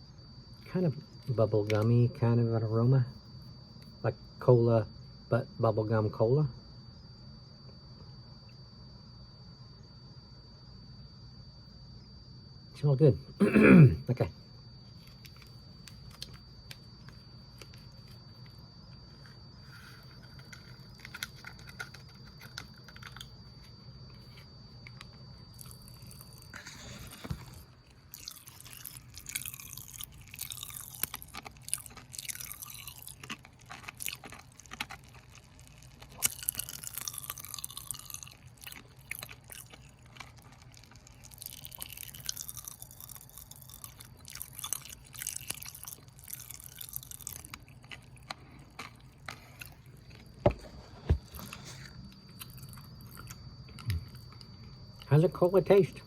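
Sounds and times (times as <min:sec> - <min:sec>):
faint high whine: 0:00.0 - 0:56.0
popping candy crackling: 0:15.1 - 0:54.4.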